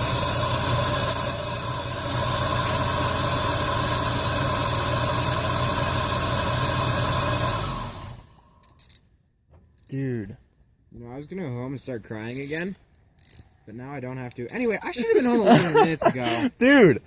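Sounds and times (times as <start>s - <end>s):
car engine running with hiss: 0.0s - 8.6s.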